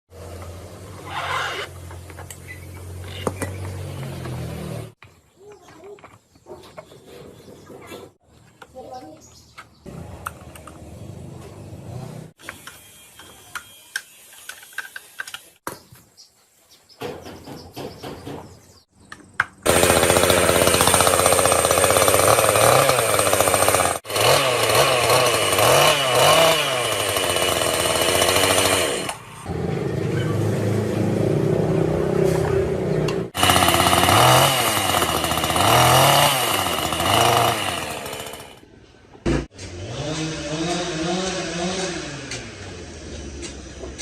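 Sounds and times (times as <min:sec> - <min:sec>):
chainsaw engine revving: 0:19.6 - 0:38.6, 0:39.6 - 0:43.1.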